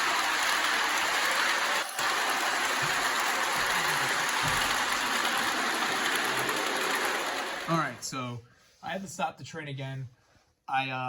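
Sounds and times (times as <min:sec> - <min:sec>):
model locomotive rushing hiss: 0:00.0 - 0:08.2.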